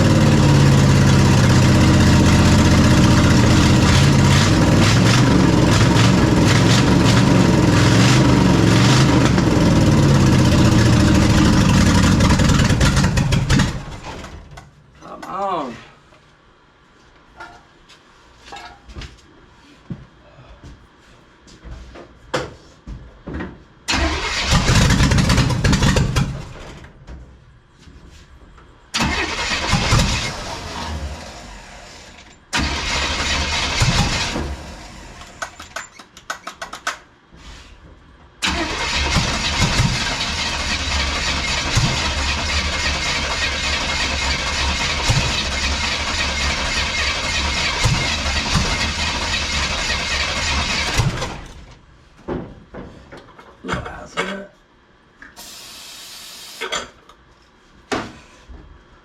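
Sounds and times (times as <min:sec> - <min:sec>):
race engine starting and running: 0:00.0 - 0:14.5, 0:23.9 - 0:26.6, 0:29.0 - 0:35.6, 0:38.4 - 0:51.8.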